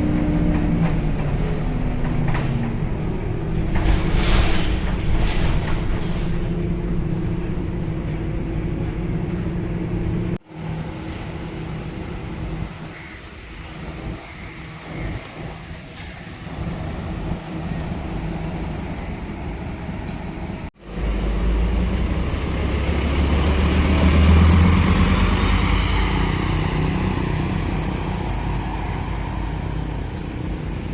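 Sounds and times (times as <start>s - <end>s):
traffic noise: 0.0s - 30.9s
bus diesel engine pulling away: 14.8s - 30.9s.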